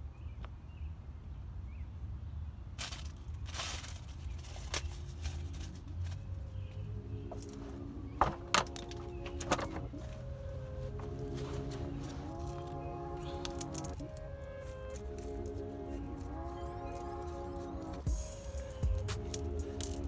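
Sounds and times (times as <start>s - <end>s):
metal parts and tools clicking: 6.6s - 10.2s, 11.0s - 20.0s.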